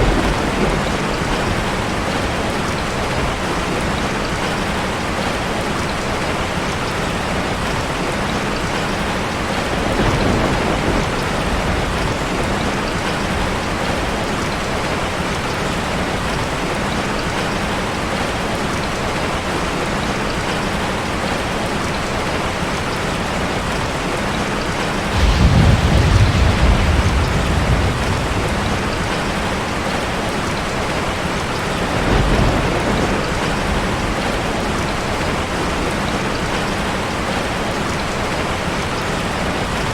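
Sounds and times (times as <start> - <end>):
thunder rolling: 0.0 - 3.8, 9.8 - 14.8, 25.0 - 31.1, 31.7 - 35.6
heavy rain on car roof: 0.0 - 39.9.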